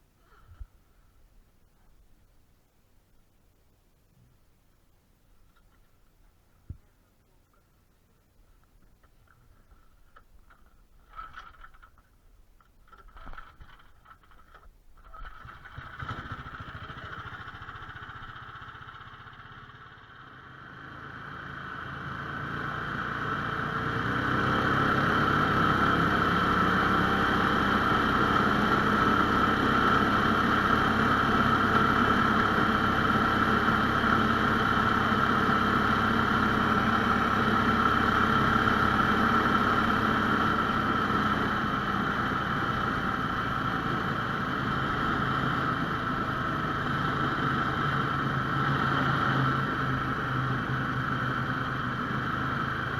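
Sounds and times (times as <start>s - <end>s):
petrol engine running: 12.9s - 52.9s.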